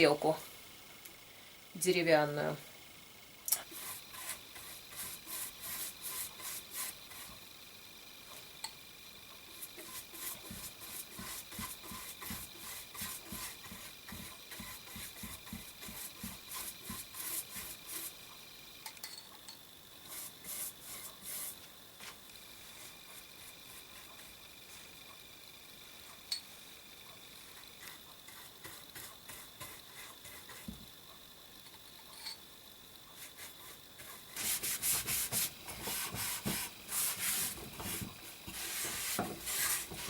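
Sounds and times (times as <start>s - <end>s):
rubbing strokes on wood: 3.6s - 7.4s, 9.6s - 18.2s, 20.1s - 21.6s, 33.2s - 40.0s.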